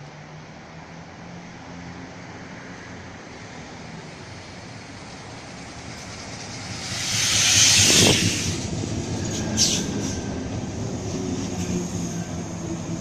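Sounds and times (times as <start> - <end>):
electric train pulling in: 1.7 - 13.0
brief high squeal: 6.9 - 10.4.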